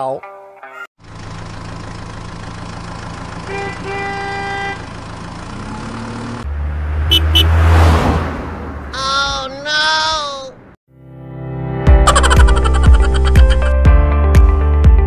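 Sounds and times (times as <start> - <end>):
vehicle engine running: 1.0 - 7.9
car horn honking: 3.4 - 5.1, 7.0 - 8.0.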